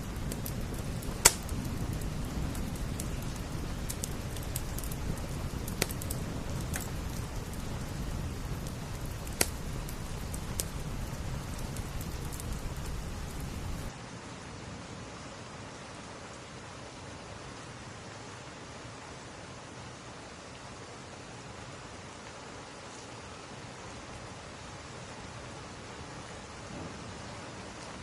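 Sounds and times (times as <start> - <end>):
rain pattering on window glass: 0.0 - 14.0
wood fire crackling and popping: 0.0 - 14.0.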